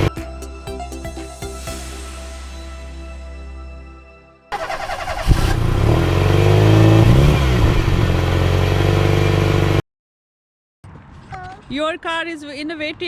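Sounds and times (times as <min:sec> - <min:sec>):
vehicle engine revving: 0:04.5 - 0:09.8.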